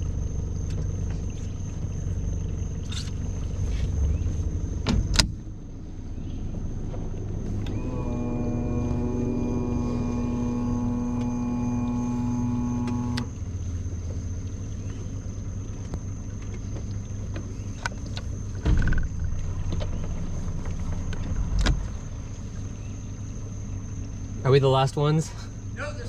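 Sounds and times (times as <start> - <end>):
boat motor running: 0.0 - 24.2
low rumble: 0.0 - 24.2
knocks and bumps: 18.5 - 21.9.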